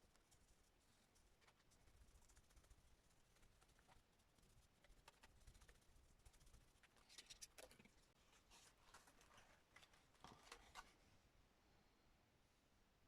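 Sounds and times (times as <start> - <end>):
paper rustling and tapping: 8.5 - 11.0.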